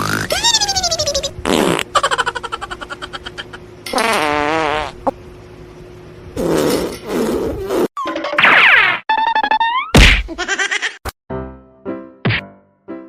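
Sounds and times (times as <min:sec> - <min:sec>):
comedy fart sound effects: 0:01.3 - 0:02.0, 0:03.9 - 0:05.2, 0:06.4 - 0:10.3.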